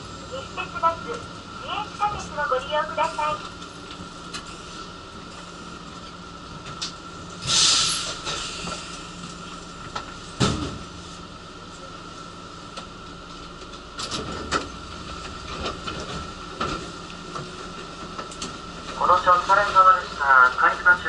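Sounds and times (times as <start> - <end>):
train running hum: 0.0 - 21.0
burst of hiss: 7.4 - 8.6.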